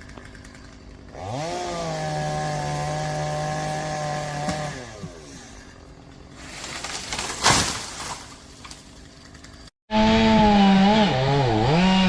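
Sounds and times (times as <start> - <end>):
chainsaw running at high revs: 0.0 - 6.3, 9.9 - 12.0.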